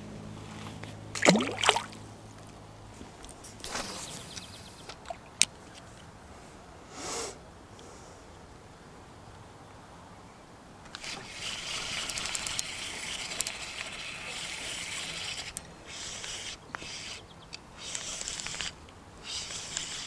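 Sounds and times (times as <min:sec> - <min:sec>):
fishing reel whirring and clicking: 0:10.9 - 0:20.0.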